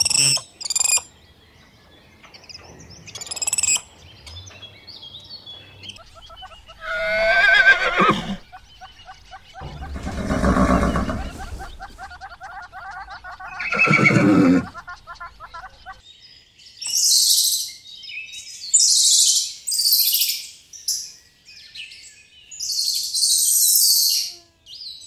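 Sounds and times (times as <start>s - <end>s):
high chirping bird calls: 0.0s - 25.0s
horse whinnying: 6.8s - 8.4s, 9.6s - 11.8s, 13.6s - 14.7s.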